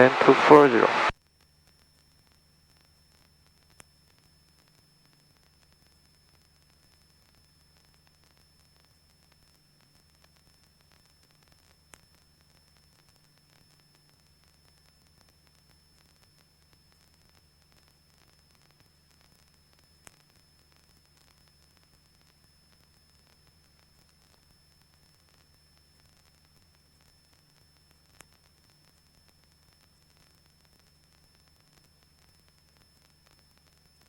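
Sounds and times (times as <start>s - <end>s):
faint electronic hiss: 0.0s - 1.1s
low hum: 0.0s - 1.1s
thin high whine: 0.0s - 1.1s.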